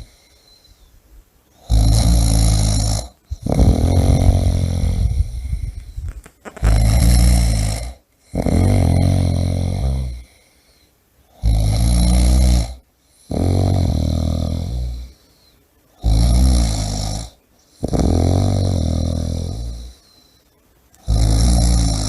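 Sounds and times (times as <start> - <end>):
person snoring: 1.6 - 5.9, 6.5 - 10.5, 11.3 - 15.2, 16.0 - 20.2, 21.0 - 22.0.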